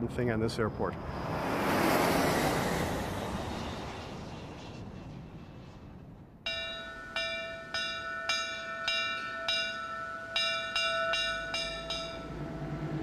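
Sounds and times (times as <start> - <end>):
bell-like chimes ringing: 6.5 - 12.8.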